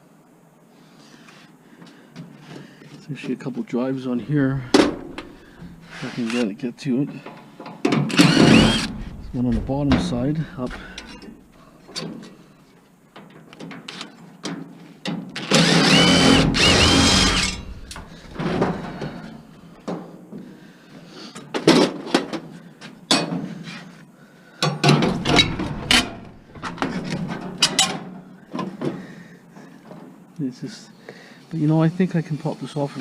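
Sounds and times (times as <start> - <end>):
parts clanking and knocking: 4.2 - 6.0, 7.6 - 12.2, 15.6 - 19.7, 24.7 - 28.2
cordless power drill whine: 4.4 - 6.0, 8.1 - 10.0, 15.4 - 19.4.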